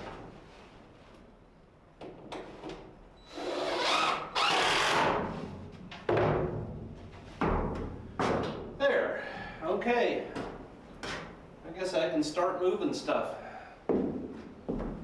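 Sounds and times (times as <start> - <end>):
power drill driving screws into wood: 3.3 - 5.1.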